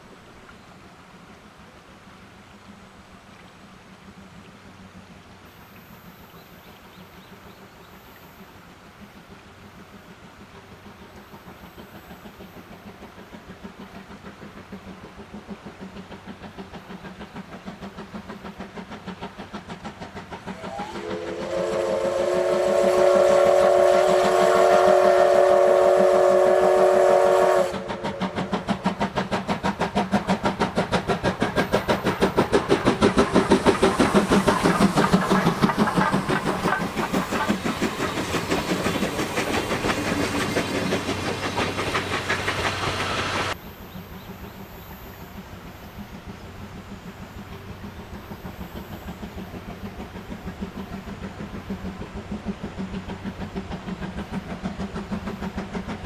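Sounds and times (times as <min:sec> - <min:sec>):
steam locomotive chuffing: 0:00.0 - 0:56.0
steam whistle chord: 0:20.5 - 0:28.5.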